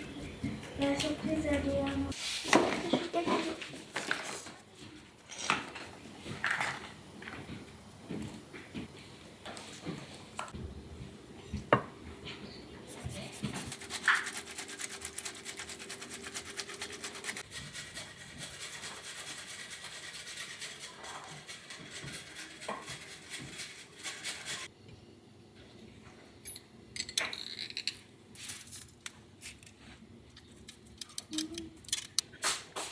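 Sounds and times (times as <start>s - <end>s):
rapid scraping strokes: 13.0s - 24.7s.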